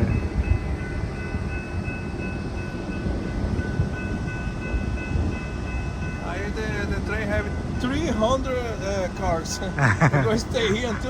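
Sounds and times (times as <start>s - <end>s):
freight train rumbling past: 0.0s - 11.0s.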